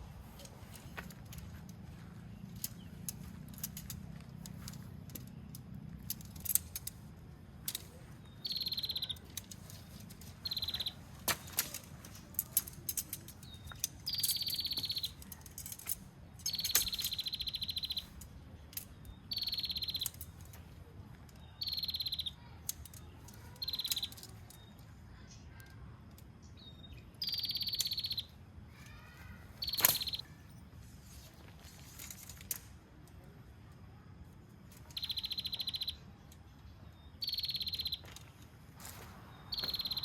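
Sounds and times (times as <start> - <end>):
sharp clicks: 2.4 - 20.6, 29.6 - 30.3.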